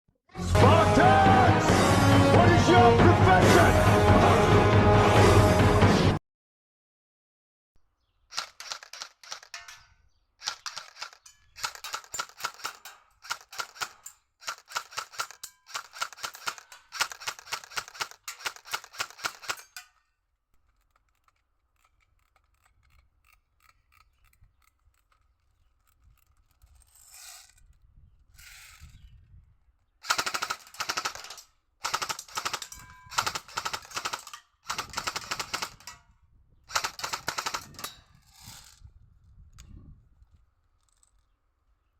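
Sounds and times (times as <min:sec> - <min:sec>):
airsoft rifle firing full-auto: 0:08.3 - 0:09.6, 0:10.4 - 0:19.8, 0:30.0 - 0:36.0, 0:36.7 - 0:37.8.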